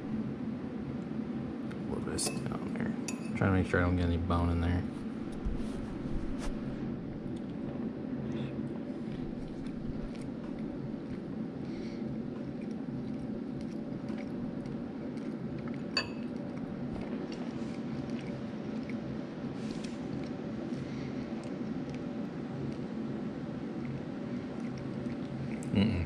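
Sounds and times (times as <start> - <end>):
low room hum: 0.0 - 26.0
light metallic clink: 3.1 - 3.4
person chewing soft food: 7.2 - 26.0
wet mouth clicks: 24.6 - 25.9.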